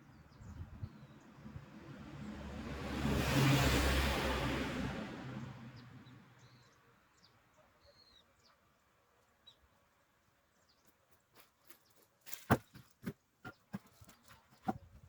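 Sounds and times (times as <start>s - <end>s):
faint bird chirps: 6.4s - 8.7s.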